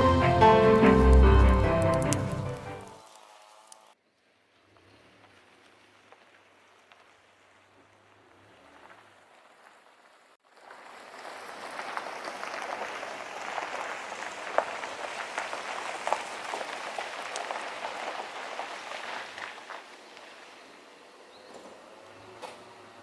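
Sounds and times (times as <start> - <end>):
wood fire crackling: 0.0 - 3.9, 8.8 - 20.6.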